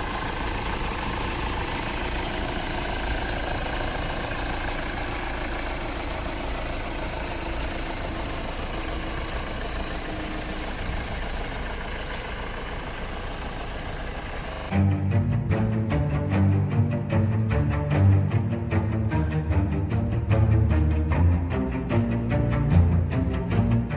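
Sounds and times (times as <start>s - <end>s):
diesel car engine running: 0.0s - 23.9s.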